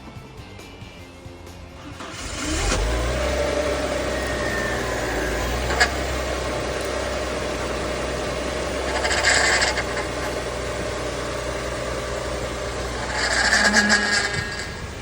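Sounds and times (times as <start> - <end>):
car engine starting and idling: 1.5 - 15.0.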